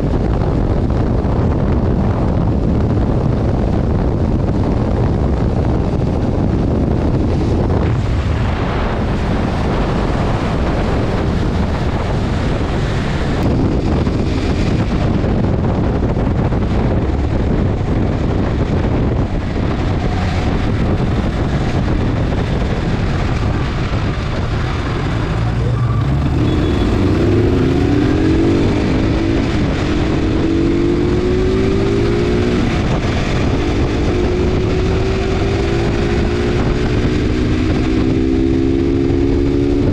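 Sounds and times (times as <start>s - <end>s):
motorcycle engine accelerating: 0.0s - 39.9s
wind and road noise: 0.0s - 39.9s.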